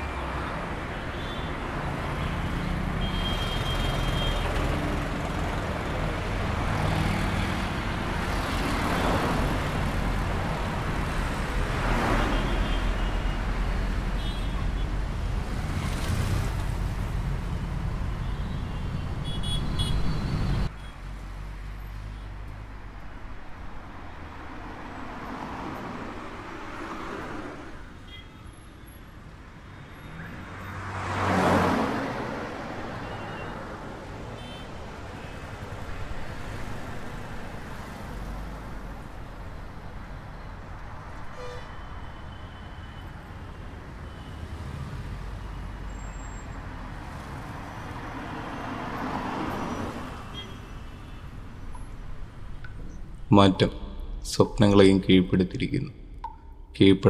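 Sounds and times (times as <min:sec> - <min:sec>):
car engines and passing cars: 0:00.0 - 0:57.0
car horn toots: 0:18.2 - 0:20.2.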